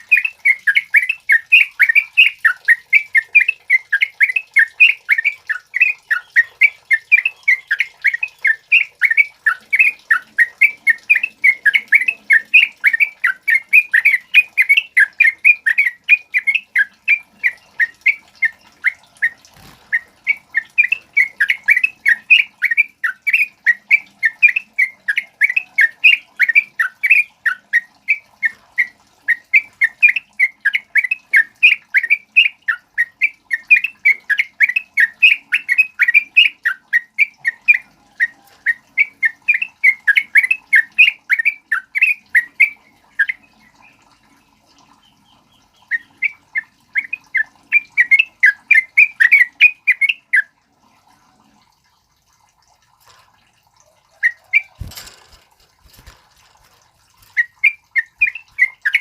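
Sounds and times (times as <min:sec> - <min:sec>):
bird singing fast chatter: 0:54.2 - 0:59.0.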